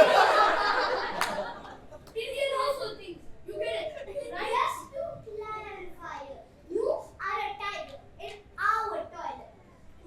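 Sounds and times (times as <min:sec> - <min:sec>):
child speaking: 0:02.2 - 0:09.8.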